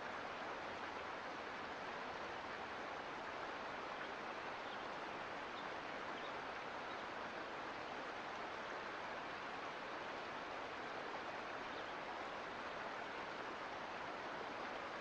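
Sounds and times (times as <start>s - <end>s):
creek flowing over rocks: 0.0s - 15.0s.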